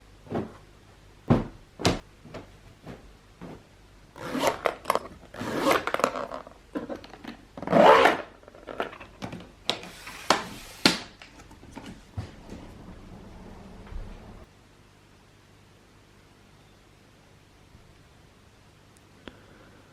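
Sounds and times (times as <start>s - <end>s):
sharp handling knocks and clicks: 1.3s - 3.7s.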